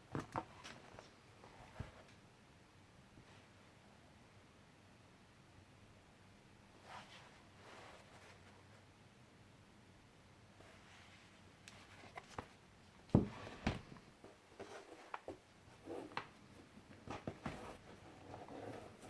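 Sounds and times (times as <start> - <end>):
thump on paper journal: 13.1 - 13.8.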